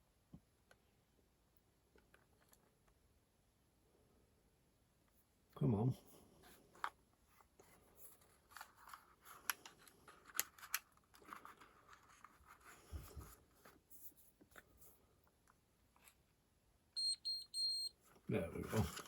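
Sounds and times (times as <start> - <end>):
small clicks and scrapes: 1.9 - 3.0, 6.4 - 16.2, 18.7 - 19.0.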